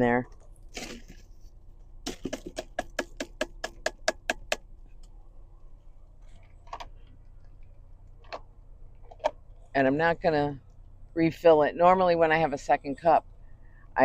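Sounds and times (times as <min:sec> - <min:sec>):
sharp tapping of coffee filter: 0:02.1 - 0:04.6.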